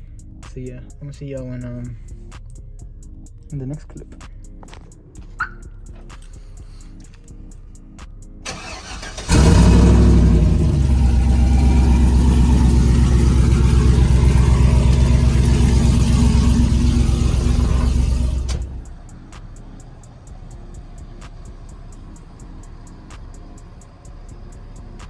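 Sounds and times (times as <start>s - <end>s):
vehicle engine cranking and idling: 8.4s - 25.0s.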